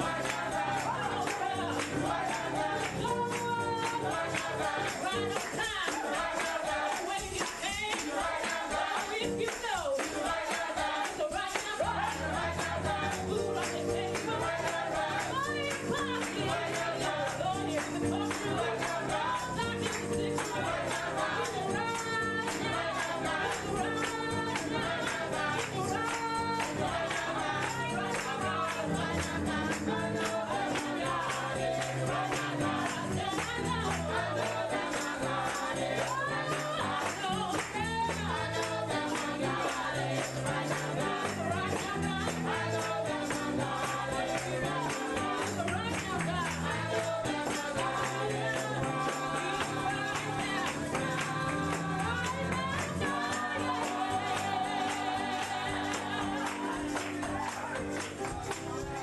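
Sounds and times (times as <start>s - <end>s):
choir and congregation singing: 0.0s - 59.0s
tambourine shaking: 0.0s - 59.0s.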